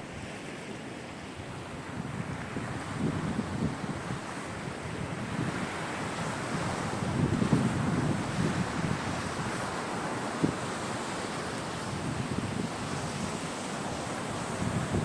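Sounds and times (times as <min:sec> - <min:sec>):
sea waves washing onto shore: 0:00.0 - 0:15.0
wind buffeting microphone: 0:01.5 - 0:15.0.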